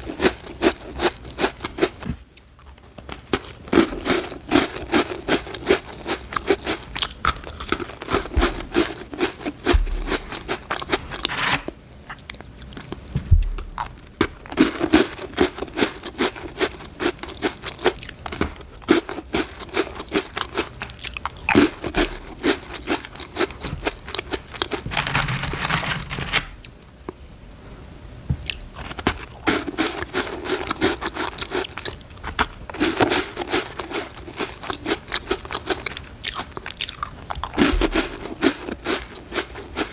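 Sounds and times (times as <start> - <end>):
crunching and chewing cookies: 0.0 - 27.2, 28.3 - 39.9.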